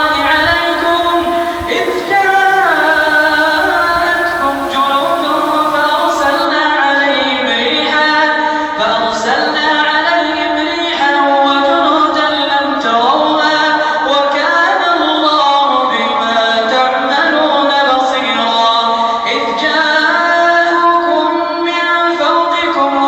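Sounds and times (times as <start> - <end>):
person chanting melodically: 0.0 - 6.4.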